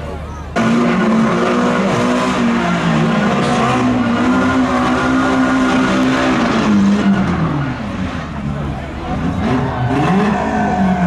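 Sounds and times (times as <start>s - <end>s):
car engine at high revs: 0.0s - 11.0s.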